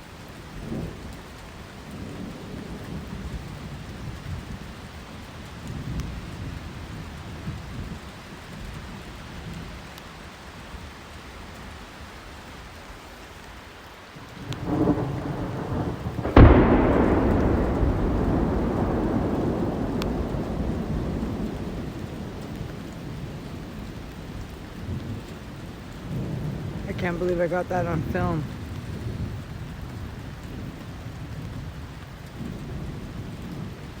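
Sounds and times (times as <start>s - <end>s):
low rumbling thunder: 0.0s - 9.8s, 14.3s - 34.0s
heavy rain falling: 0.0s - 34.0s
sharp lightning crack: 14.4s - 23.3s.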